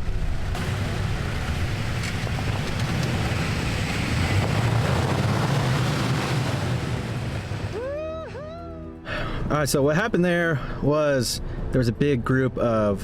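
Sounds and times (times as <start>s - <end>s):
truck engines rumbling: 0.0s - 8.1s.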